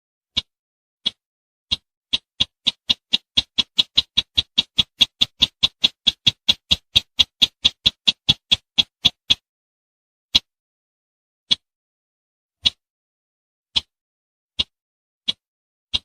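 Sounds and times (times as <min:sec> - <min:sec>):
bird ticking call: 0:00.3 - 0:09.4, 0:14.6 - 0:16.0.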